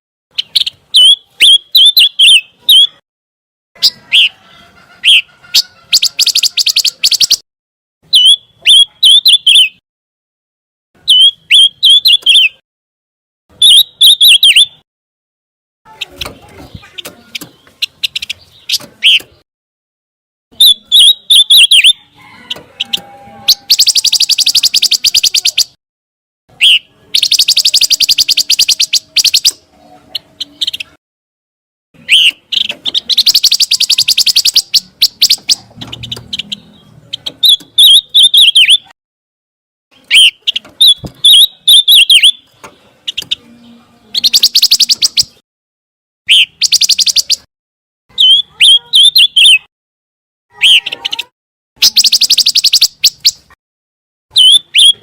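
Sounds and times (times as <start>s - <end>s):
bird warbled whistle and buzzy trill: 5.1s - 7.4s, 13.6s - 14.8s, 20.6s - 22.0s, 22.7s - 25.8s, 26.6s - 29.6s, 32.0s - 35.7s, 37.4s - 39.0s, 40.1s - 42.4s, 44.2s - 45.4s, 46.3s - 47.5s, 51.8s - 53.5s, 54.3s - 55.0s.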